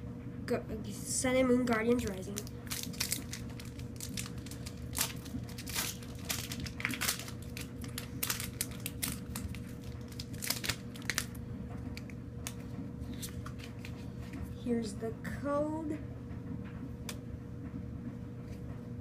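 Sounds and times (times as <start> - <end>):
foil wrapper crinkling and tearing: 2.0 - 14.0.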